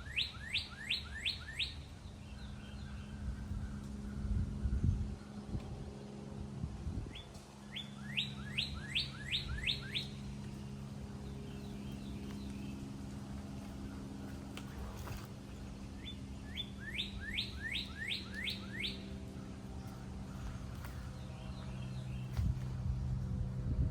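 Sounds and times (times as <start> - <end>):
songbird whistling: 0.0 - 1.9, 7.1 - 10.3, 16.0 - 19.2
steady low hum: 0.0 - 23.9.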